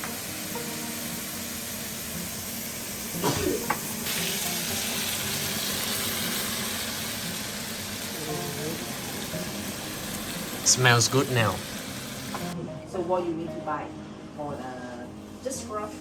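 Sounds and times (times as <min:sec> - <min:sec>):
food sizzling in frying pan: 0:00.0 - 0:12.6.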